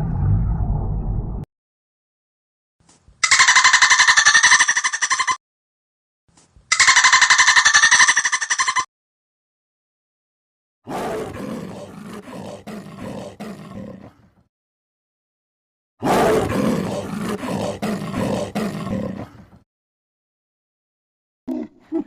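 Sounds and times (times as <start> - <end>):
big cat roaring: 10.9 - 14.4, 16.0 - 19.6.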